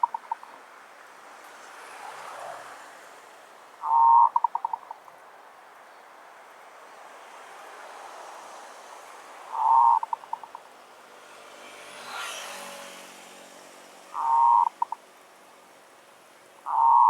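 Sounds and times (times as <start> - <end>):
dove cooing: 0.0 - 0.4, 3.8 - 4.9, 9.5 - 10.6, 14.2 - 15.0, 16.7 - 17.0
vehicle passing: 0.0 - 4.4, 6.9 - 17.0.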